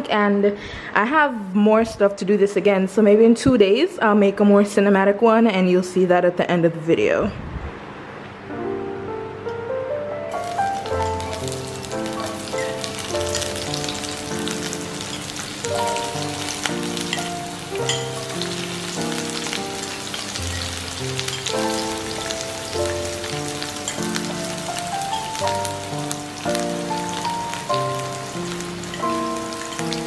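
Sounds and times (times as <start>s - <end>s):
background music of held chords: 8.5s - 30.0s
vegetables sizzling in oil: 10.3s - 30.0s.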